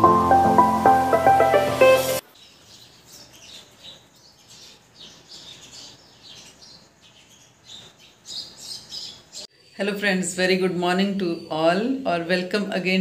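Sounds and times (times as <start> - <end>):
small birds chirping: 2.0 - 9.9.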